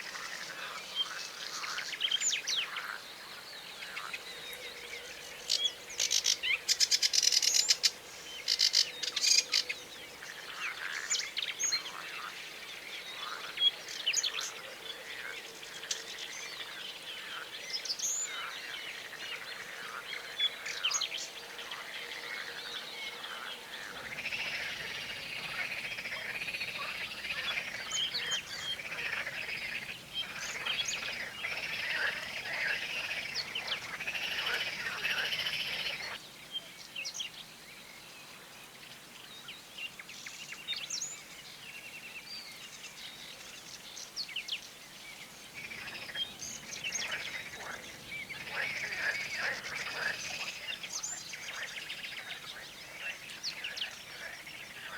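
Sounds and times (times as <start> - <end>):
small birds chirping: 15.6 - 36.2, 38.9 - 54.9.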